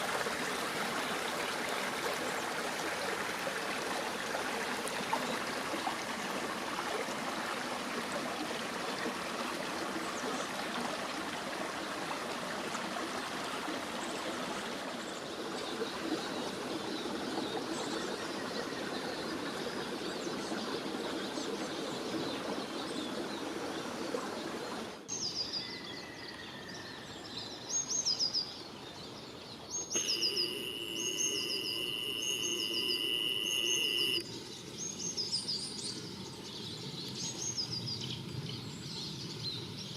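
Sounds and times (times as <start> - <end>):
stream running water: 0.0 - 39.9
birds chirping: 29.8 - 34.2
steady high-pitched tone: 30.0 - 34.2.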